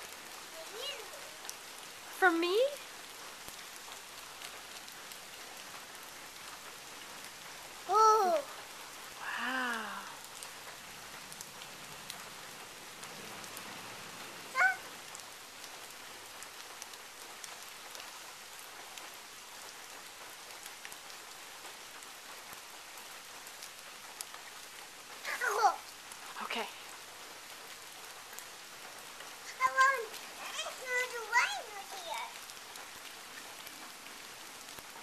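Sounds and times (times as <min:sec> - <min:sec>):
water drips: 0:00.0 - 0:20.0
rain falling on pavement: 0:00.0 - 0:35.0.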